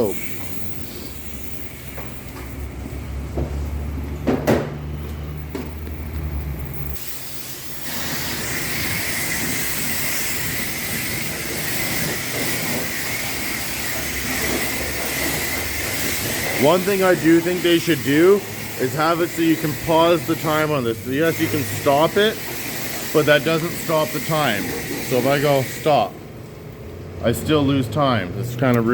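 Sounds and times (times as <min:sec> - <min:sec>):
knocks: 0:04.2 - 0:04.8
hiss of spray wand: 0:06.9 - 0:25.9.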